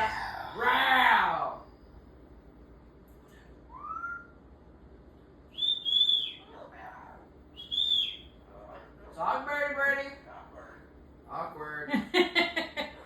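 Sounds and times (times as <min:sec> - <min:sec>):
parrot whistling: 0:03.7 - 0:04.4, 0:05.5 - 0:08.4.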